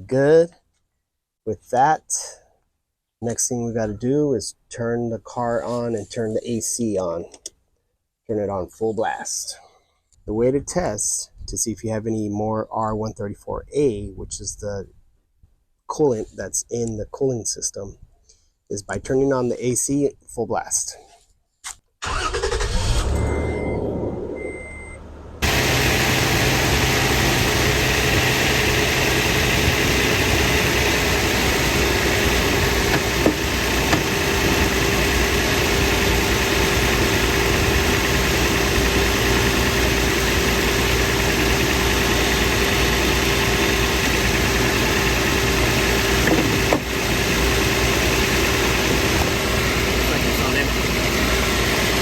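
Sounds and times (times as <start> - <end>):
car engine starting and idling: 22.0 - 52.0
air conditioning rushing: 22.6 - 52.0
short beeps: 23.1 - 25.0.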